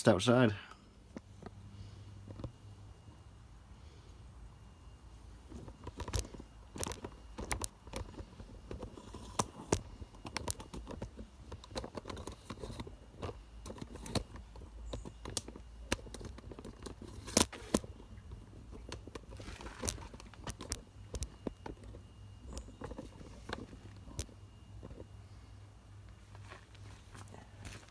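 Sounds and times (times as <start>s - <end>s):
hands handling objects: 5.4s - 25.1s.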